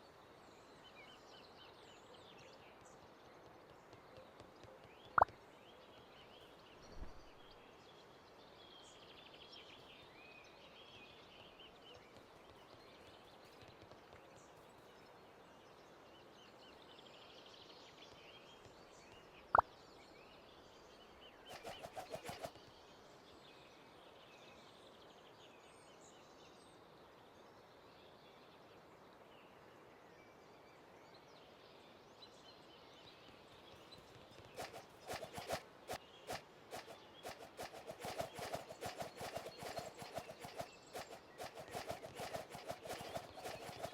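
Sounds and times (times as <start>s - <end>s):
distant birds chirping: 33.7s - 43.9s.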